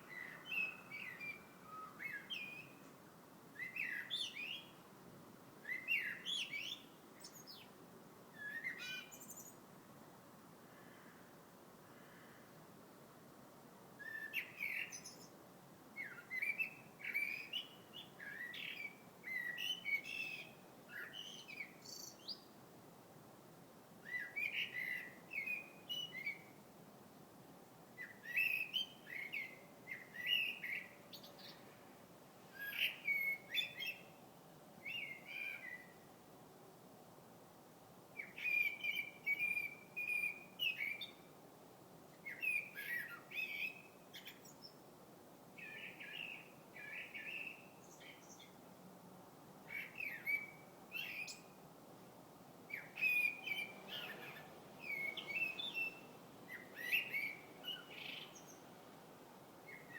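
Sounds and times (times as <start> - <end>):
songbird chirping and warbling: 0.0 - 2.9, 8.4 - 9.6, 45.6 - 48.6, 49.6 - 51.6, 52.7 - 58.8.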